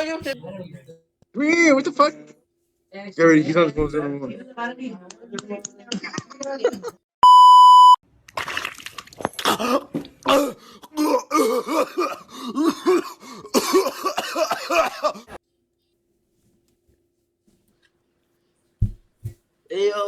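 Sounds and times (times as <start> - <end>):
censor bleep: 7.2 - 8.0.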